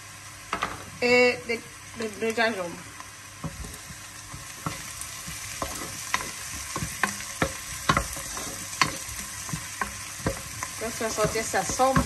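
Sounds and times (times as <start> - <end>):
onions sizzling in a pot: 0.0 - 12.0
wooden spoon scraping a pot: 3.4 - 12.0.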